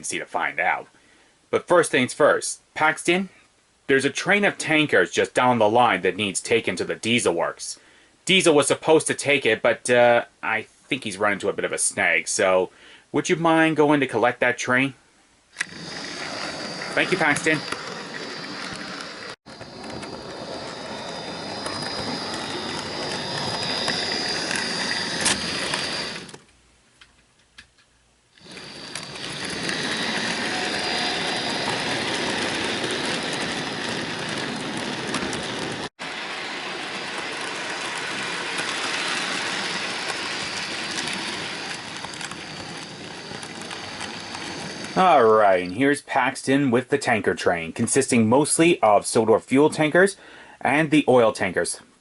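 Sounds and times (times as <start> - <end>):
model train motor whine: 15.6 - 26.4, 28.4 - 45.4.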